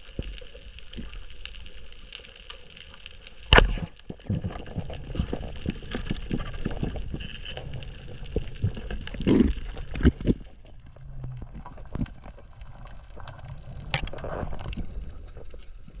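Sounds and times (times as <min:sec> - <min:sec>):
water sloshing and gurgling: 0:00.0 - 0:16.0.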